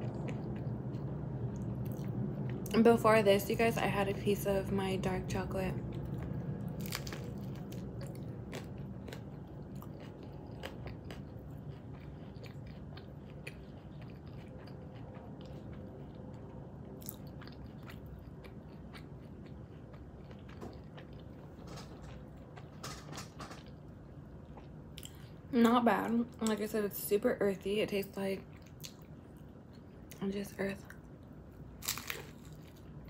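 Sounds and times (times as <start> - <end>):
person chewing crispy food: 0.0 - 2.7, 5.8 - 22.8, 23.6 - 25.4, 28.5 - 30.2, 31.0 - 33.0.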